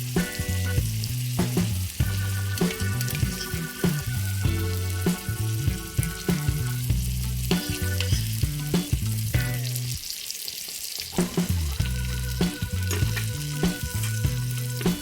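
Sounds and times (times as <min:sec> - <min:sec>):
background music: 0:00.0 - 0:09.7, 0:11.4 - 0:15.0
food sizzling in hot oil: 0:00.0 - 0:15.0.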